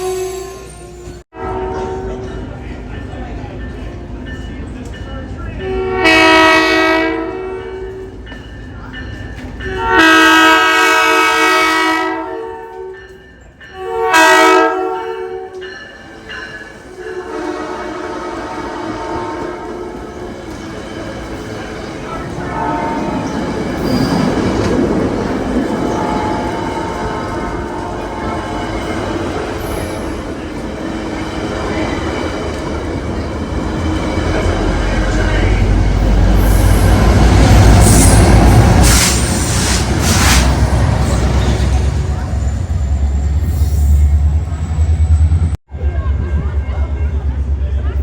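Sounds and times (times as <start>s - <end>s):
locomotive air horn: 0.0s - 2.2s, 5.7s - 8.0s, 9.7s - 13.0s, 13.8s - 15.6s, 17.0s - 20.0s, 22.4s - 23.2s
train wheels rumbling on rails: 1.0s - 14.0s, 14.8s - 48.0s
high wheel squeal: 22.9s - 24.8s, 37.7s - 45.6s.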